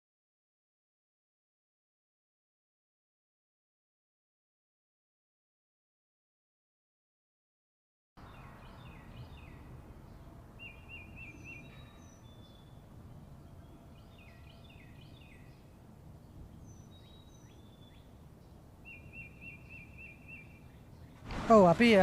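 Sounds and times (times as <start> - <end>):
low forest hum: 8.2 - 22.0
bird quavering trill: 8.3 - 15.8.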